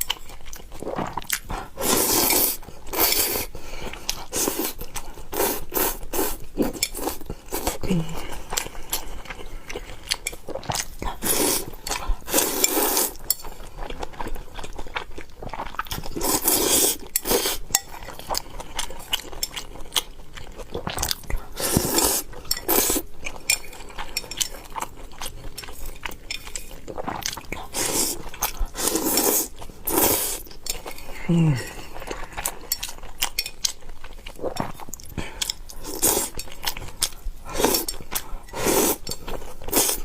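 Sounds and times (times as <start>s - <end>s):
chewing: 0.0s - 40.0s
utensils clinking on a bowl: 22.0s - 24.7s.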